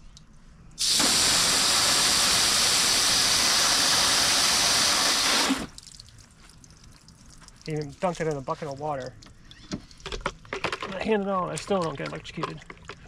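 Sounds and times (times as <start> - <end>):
water spraying from hose nozzle: 0.8 - 6.0.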